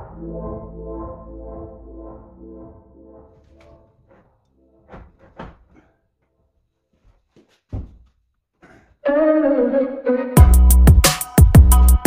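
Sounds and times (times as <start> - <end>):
wooden door knocks and thunk: 4.9 - 5.7, 7.7 - 8.1.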